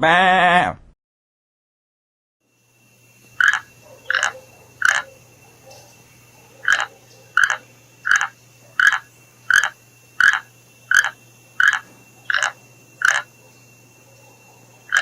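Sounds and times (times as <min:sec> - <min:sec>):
animal calling: 0:03.2 - 0:15.0.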